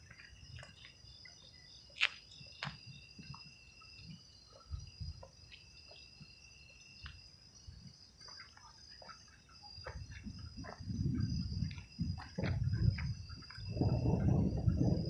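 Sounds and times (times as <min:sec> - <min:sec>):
night insects trilling: 0:00.0 - 0:15.0
faint ticks: 0:07.0 - 0:07.2.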